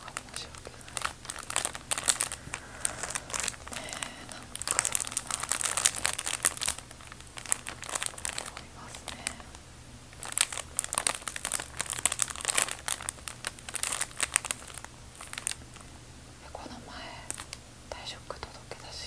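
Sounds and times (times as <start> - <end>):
bag crinkling: 0.0 - 16.0, 17.2 - 17.6.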